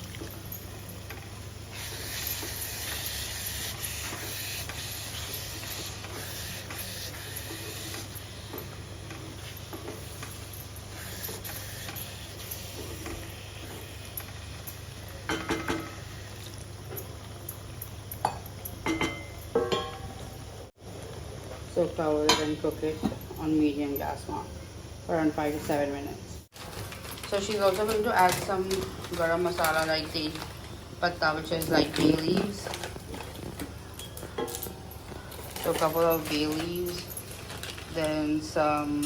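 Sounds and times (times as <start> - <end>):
food sizzling in a pot: 1.4 - 16.3.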